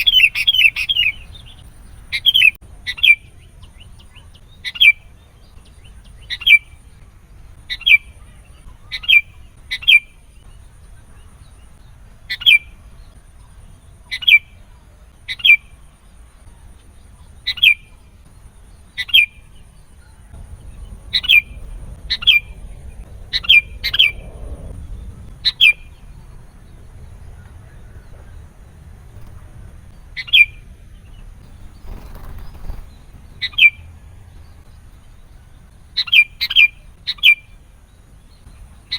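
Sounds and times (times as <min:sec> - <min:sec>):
bird sharp downward calls: 0:00.0 - 0:03.3, 0:25.4 - 0:26.2, 0:35.9 - 0:37.6
faint low hum: 0:00.0 - 0:38.9.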